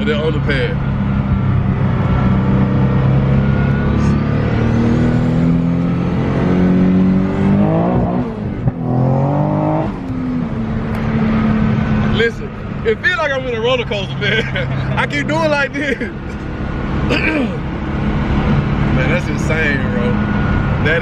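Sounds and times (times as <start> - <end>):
car engine from inside cabin: 0.0 - 21.0.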